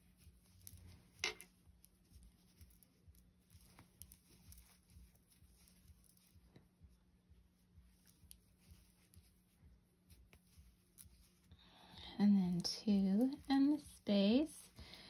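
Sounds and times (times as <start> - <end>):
scratchy rustle: 0.0 - 6.6, 7.7 - 11.5
yarn rustling with crochet hook clicks: 0.0 - 6.7, 7.7 - 11.5, 12.2 - 14.8.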